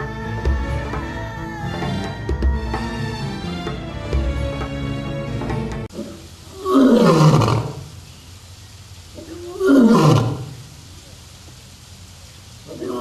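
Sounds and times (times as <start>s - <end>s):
music: 0.0s - 5.9s.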